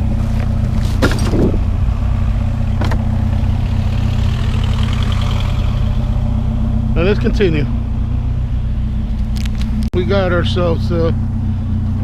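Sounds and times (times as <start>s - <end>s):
truck engine idling: 0.0s - 12.0s
junk clattering: 0.2s - 1.9s, 2.6s - 3.3s.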